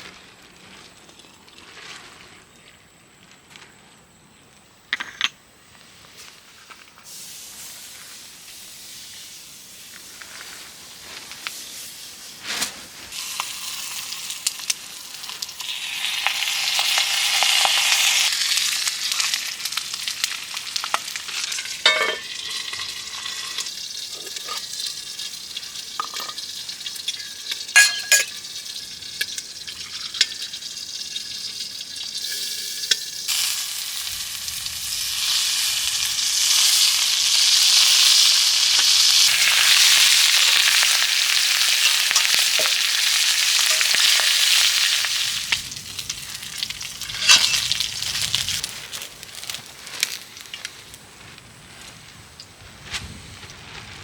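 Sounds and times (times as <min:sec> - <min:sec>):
food sizzling in a pan: 0:07.0 - 0:52.5
utensil clinking against pan: 0:27.1 - 0:28.4.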